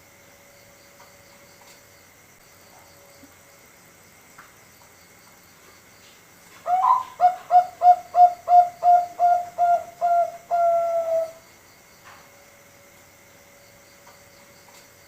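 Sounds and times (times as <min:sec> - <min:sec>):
dove cooing: 0:06.6 - 0:11.4.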